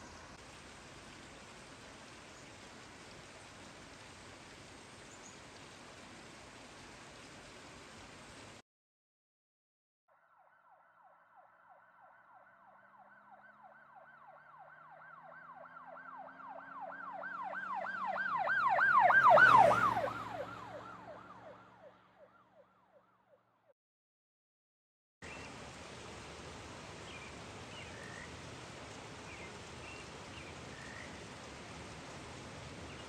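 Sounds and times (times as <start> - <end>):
emergency siren yelping: 10.4 - 23.0
vehicle engine: 15.7 - 21.9.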